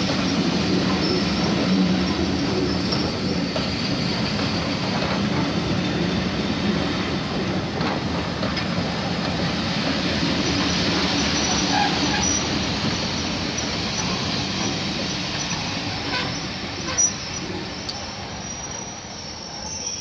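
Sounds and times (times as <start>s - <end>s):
steel wheels rumbling on rails: 0.0s - 20.0s
faint high wheel squeal: 1.0s - 5.0s, 11.1s - 20.0s.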